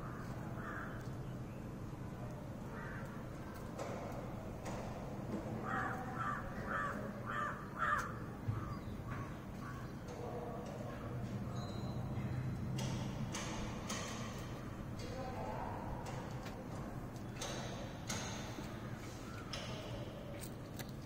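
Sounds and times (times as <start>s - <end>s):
harsh bird calls: 5.6s - 10.3s.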